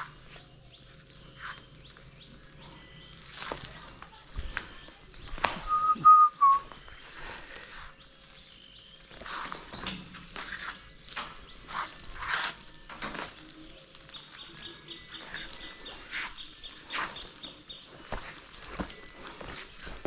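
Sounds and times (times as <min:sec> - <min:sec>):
birds chirping in trills: 0:00.0 - 0:20.0
clear whistle dipping at end: 0:05.7 - 0:06.6.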